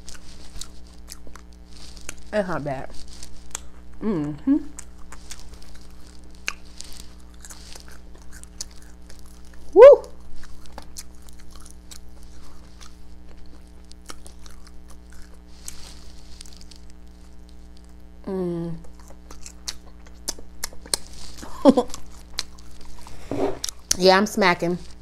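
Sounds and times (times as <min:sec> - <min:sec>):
person chewing crunchy food: 0:00.0 - 0:18.2, 0:18.8 - 0:24.0
faint steady hum: 0:00.0 - 0:25.0
hummed sounds of enjoyment: 0:03.9 - 0:04.9, 0:09.6 - 0:10.3, 0:18.2 - 0:19.1.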